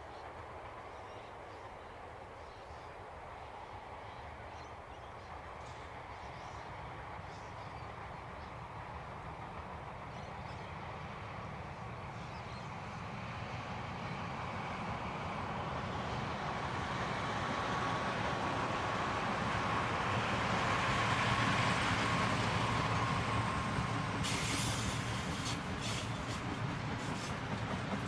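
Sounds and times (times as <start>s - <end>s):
train engine rumble: 0.0s - 28.0s
sharp train clatters: 21.6s - 28.0s.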